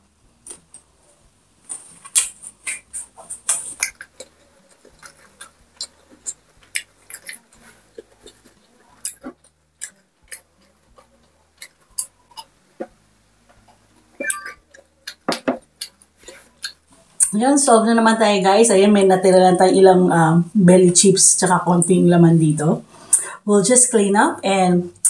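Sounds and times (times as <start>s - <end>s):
chewing crunchy food: 1.7s - 17.3s
mouth clicks: 2.0s - 13.0s, 13.6s - 17.4s.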